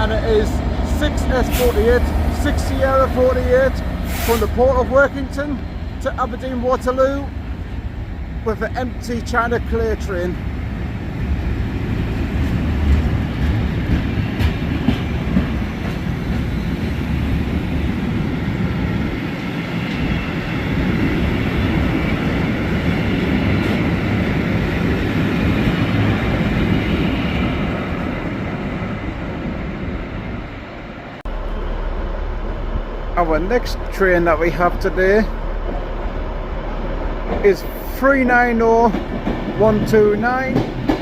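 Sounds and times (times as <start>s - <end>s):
diesel locomotive: 0.0s - 41.0s
train wheels clicking over rail joints: 11.7s - 17.7s, 37.2s - 41.0s.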